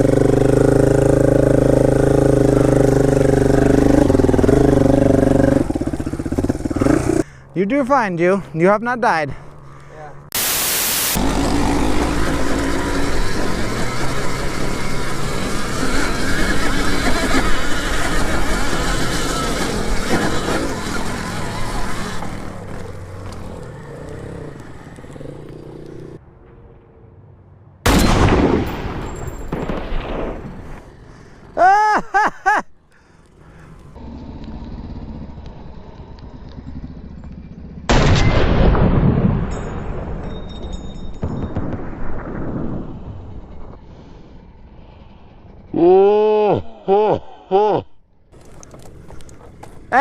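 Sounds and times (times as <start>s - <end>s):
loud gunshot bangs: 27.9s - 30.7s, 37.9s - 39.6s.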